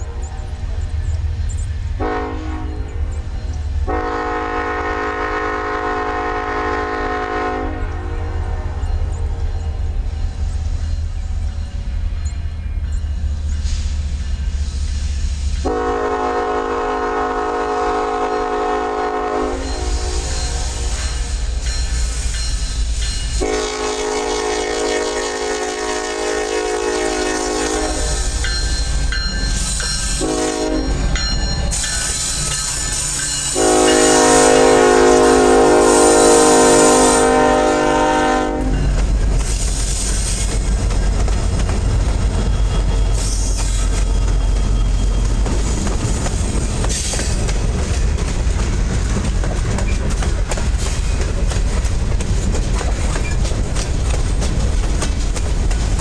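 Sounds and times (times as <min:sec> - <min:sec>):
locomotive engine rumble: 0:00.0 - 0:56.0
train wheels clacking on rails: 0:00.0 - 0:56.0
locomotive horn blasts: 0:02.0 - 0:03.1, 0:03.8 - 0:10.1, 0:15.6 - 0:21.3, 0:23.4 - 0:28.4, 0:30.2 - 0:31.1, 0:33.5 - 0:38.9.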